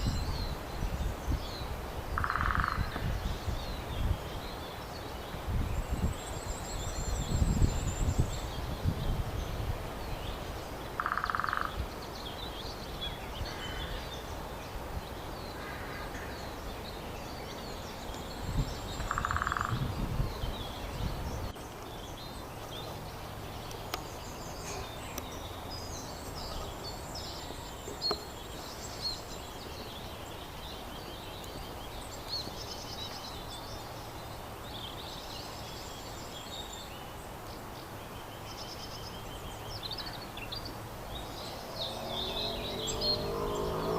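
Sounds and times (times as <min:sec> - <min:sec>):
small birds chirping: 0:00.0 - 0:43.9
short lower bird calls: 0:11.0 - 0:11.8, 0:19.0 - 0:19.9.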